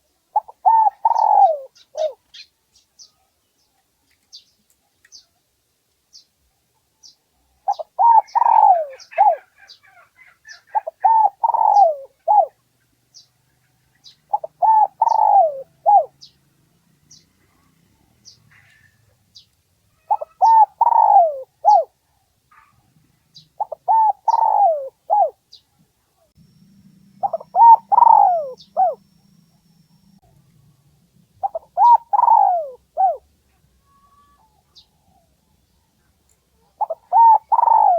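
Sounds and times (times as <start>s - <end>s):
dove cooing: 0.0s - 2.4s, 7.6s - 12.7s, 14.0s - 16.4s, 20.0s - 25.6s, 26.4s - 30.2s, 31.4s - 35.4s, 36.6s - 37.9s
faint high chirp: 0.3s - 5.3s, 7.0s - 21.9s, 22.5s - 33.2s, 36.7s - 37.9s.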